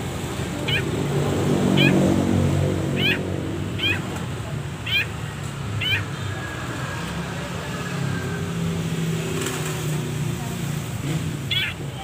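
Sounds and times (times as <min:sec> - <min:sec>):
bird sharp wavering calls: 0:00.4 - 0:04.2, 0:04.8 - 0:06.4, 0:11.4 - 0:11.9.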